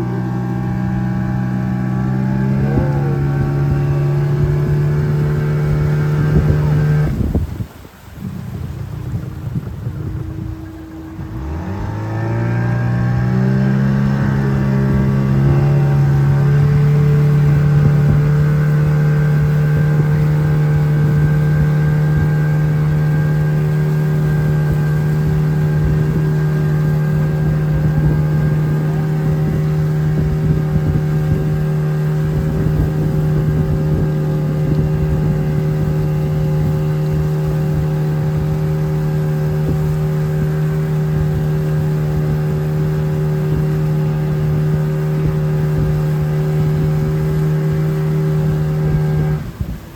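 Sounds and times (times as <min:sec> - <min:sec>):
outboard motor running: 0:00.0 - 0:49.9.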